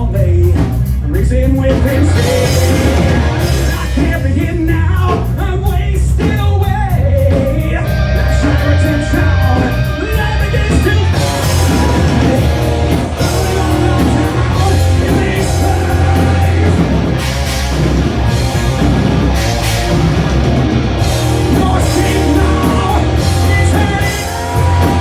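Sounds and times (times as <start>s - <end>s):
heavy rock band playing: 0.0s - 25.0s
singer yelling: 6.4s - 17.2s, 21.2s - 25.0s.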